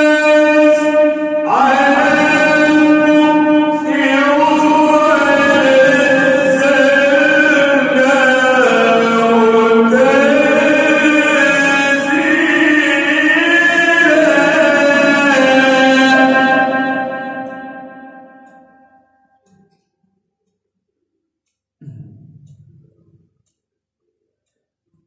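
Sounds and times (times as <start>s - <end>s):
man chanting melodically: 0.0s - 18.5s.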